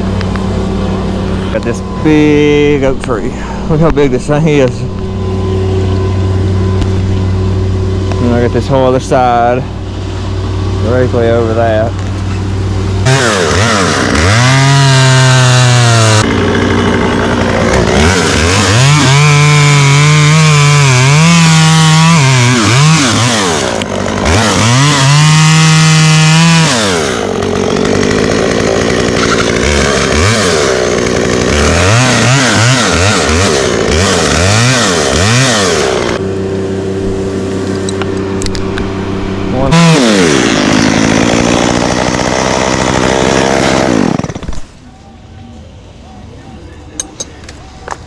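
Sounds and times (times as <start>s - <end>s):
chainsaw revving through wood: 13.0s - 36.2s, 39.3s - 44.6s.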